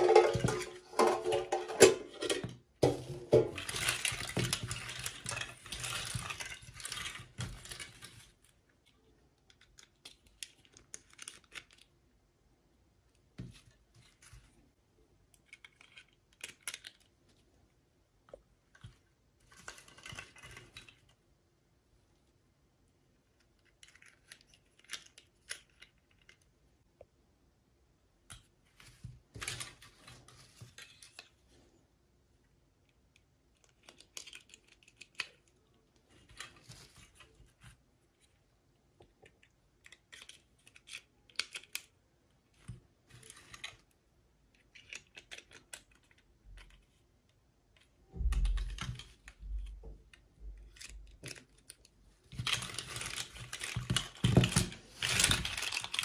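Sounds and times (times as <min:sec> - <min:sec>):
plastic toys clicking and rustling: 0:00.0 - 0:11.9, 0:15.3 - 0:17.2, 0:18.7 - 0:21.2, 0:23.3 - 0:26.5, 0:28.3 - 0:31.4, 0:33.5 - 0:38.3, 0:39.0 - 0:42.0, 0:42.6 - 0:47.0, 0:47.8 - 0:56.0.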